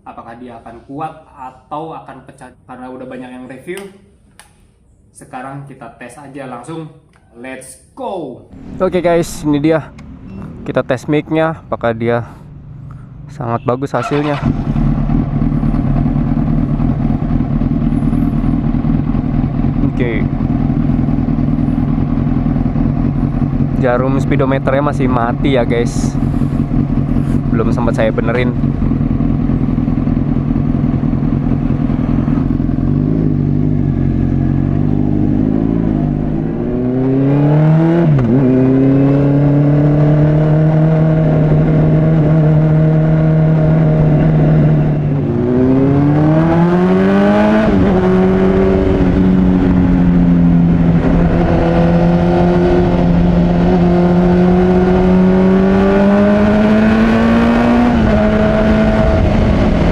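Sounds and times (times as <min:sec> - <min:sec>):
motorcycle engine revving: 0:08.6 - 0:11.0, 0:13.9 - 0:59.9.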